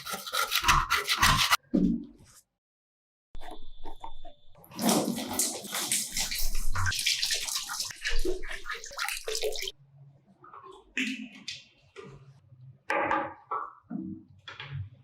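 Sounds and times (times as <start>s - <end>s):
water running and splashing: 4.7s - 9.7s.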